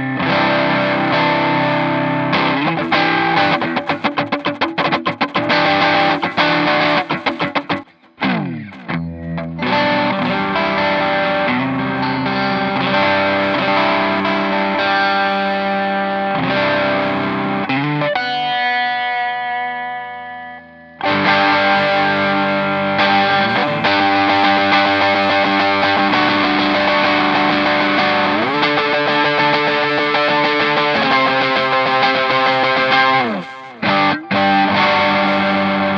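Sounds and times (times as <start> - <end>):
distorted electric guitar: 0.0 - 35.9.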